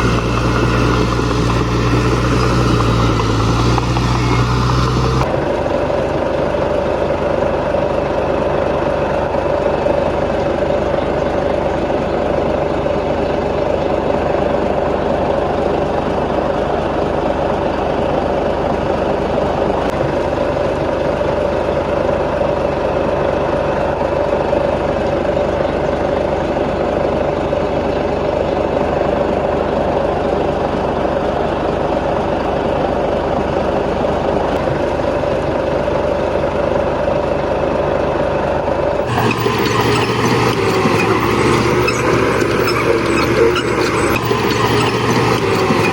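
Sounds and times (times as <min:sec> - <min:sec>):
heavy diesel engine running: 0:00.0 - 0:45.9.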